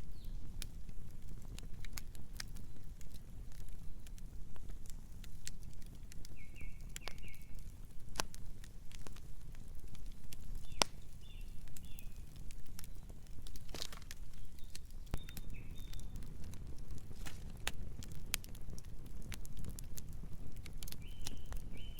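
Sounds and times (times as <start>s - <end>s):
campfire burning: 0.0s - 21.9s
crackles and pops of burning wood: 0.0s - 21.9s.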